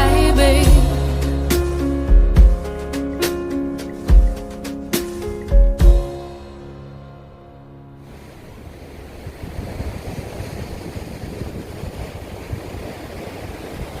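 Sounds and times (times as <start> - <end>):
song: 0.0 - 8.0
sea surf washing: 8.0 - 14.0
wind buffeting microphone: 8.2 - 14.0.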